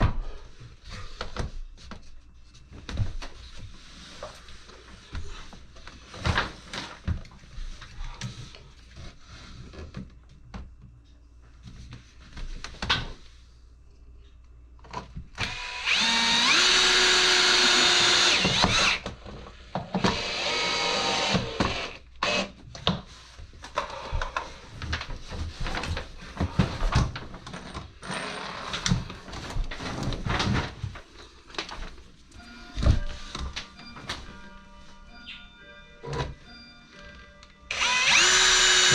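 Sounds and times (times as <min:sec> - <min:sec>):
power drill running: 0:15.4 - 0:19.0, 0:20.0 - 0:22.5, 0:37.7 - 0:38.9.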